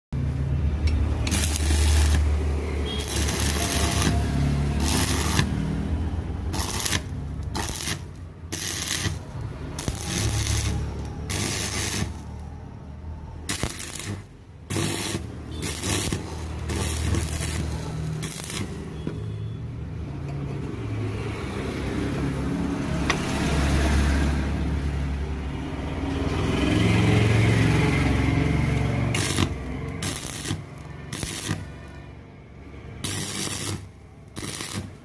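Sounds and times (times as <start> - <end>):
crackling welding arc: 0.8 - 12.5, 13.4 - 19.0, 28.7 - 31.8, 33.0 - 35.0.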